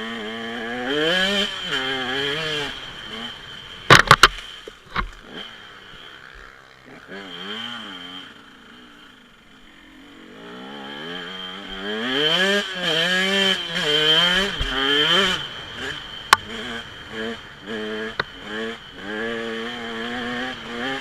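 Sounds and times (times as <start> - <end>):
dirt bike engine revving: 0.0 - 21.0
sharp knocks: 3.9 - 5.2.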